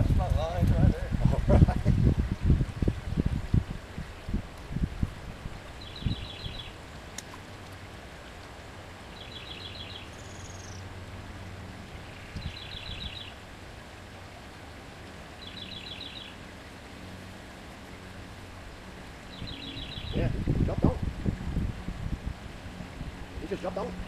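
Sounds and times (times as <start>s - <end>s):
flowing creek water: 0.0s - 24.0s
songbird trilling: 5.8s - 6.8s, 9.1s - 10.8s, 12.0s - 13.4s, 15.4s - 16.4s, 19.3s - 20.4s.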